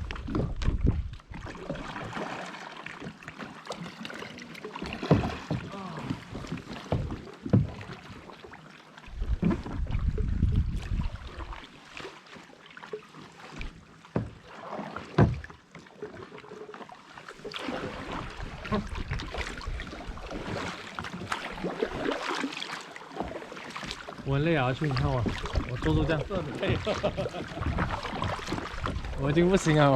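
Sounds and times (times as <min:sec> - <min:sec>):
wind on microphone: 0:00.0 - 0:01.5, 0:09.1 - 0:11.5
paddle splashing water: 0:00.0 - 0:29.9
knocks on kayak: 0:05.0 - 0:05.8, 0:15.1 - 0:15.6.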